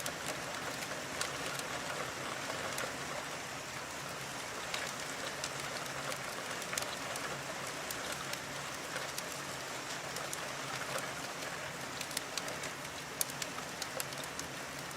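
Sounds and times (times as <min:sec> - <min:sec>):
steady rainfall: 0:00.0 - 0:14.9.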